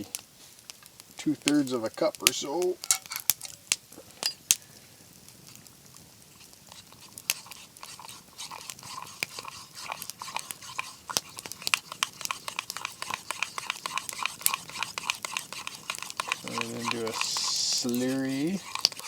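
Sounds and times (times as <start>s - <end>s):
spoon stirring in a cup: 2.8s - 3.6s, 6.4s - 19.0s.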